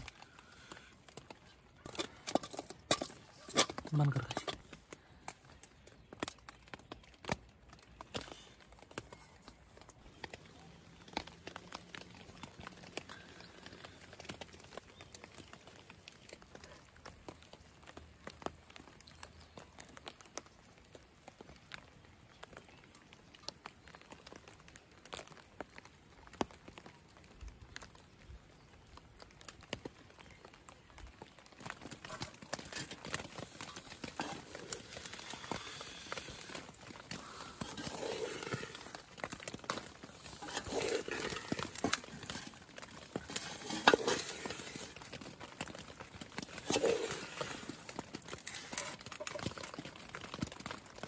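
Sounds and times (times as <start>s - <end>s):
rustling and scraping: 0.0s - 4.8s, 31.5s - 50.8s
raindrops tapping on fabric: 4.6s - 51.0s.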